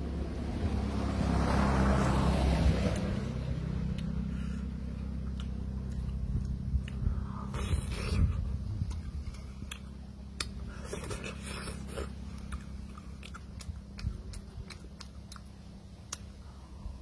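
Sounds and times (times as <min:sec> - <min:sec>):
person chewing food: 0:03.8 - 0:16.5
mouth clicks and smacks: 0:05.1 - 0:16.3.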